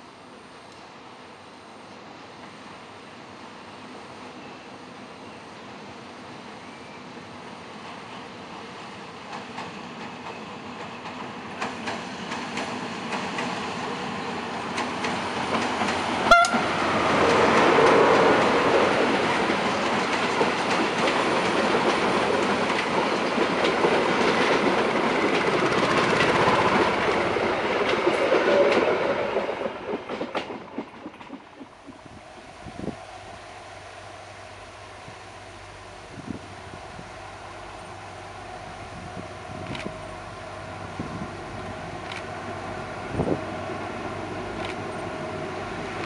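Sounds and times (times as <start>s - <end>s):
diesel locomotive: 0.0s - 46.0s
train wheels clacking on rails: 7.8s - 32.0s.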